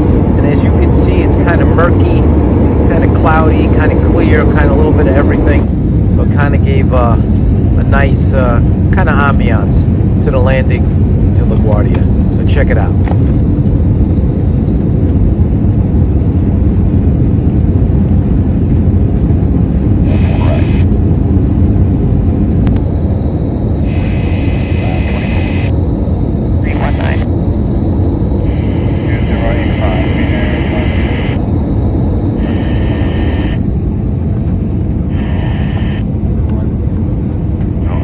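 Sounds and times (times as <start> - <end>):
airplane cabin engine rumble: 0.0 - 38.0
radio hiss: 20.0 - 20.9, 23.8 - 25.7, 26.6 - 27.3, 28.4 - 31.4, 32.4 - 33.7, 35.1 - 36.1.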